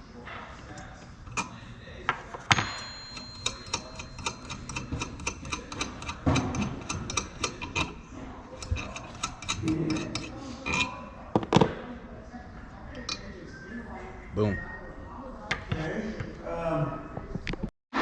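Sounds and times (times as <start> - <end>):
metallic ping: 2.4 - 7.9
metal tools clicking on metal: 2.5 - 11.0.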